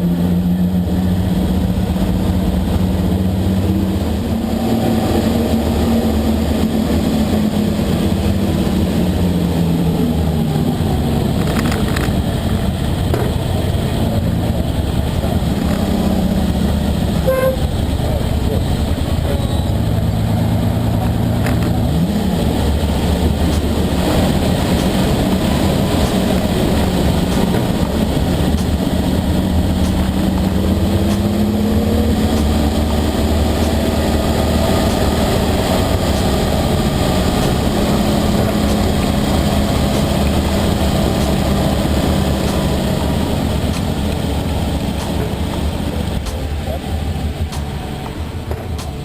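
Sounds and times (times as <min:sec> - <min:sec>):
car engine running: 0:00.0 - 0:49.0.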